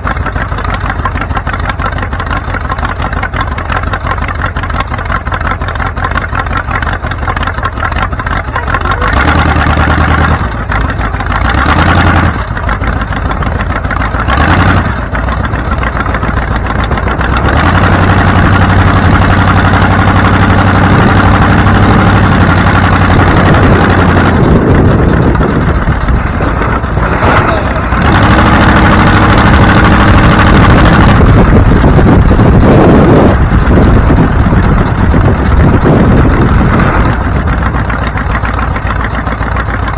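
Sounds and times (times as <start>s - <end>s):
car engine running: 0.0s - 39.9s
road noise rush: 0.0s - 39.9s.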